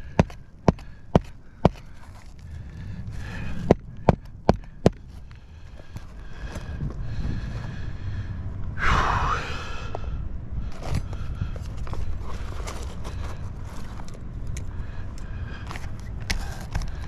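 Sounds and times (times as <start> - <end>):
hammer striking a nail: 0.0 - 1.8.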